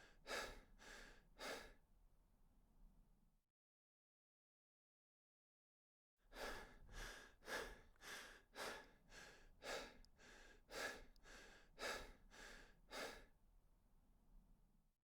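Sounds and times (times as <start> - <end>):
person panting: 0.3 - 1.7, 6.4 - 13.3.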